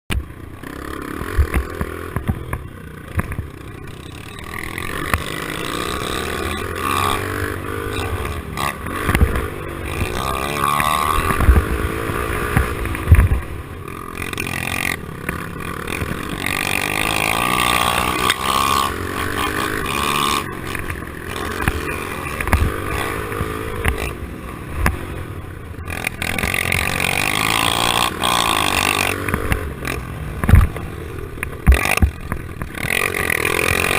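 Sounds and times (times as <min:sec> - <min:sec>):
motorbike engines revving: 0:00.1 - 0:33.9
sharp thumps: 0:01.2 - 0:03.6, 0:04.2 - 0:25.1, 0:25.8 - 0:33.9.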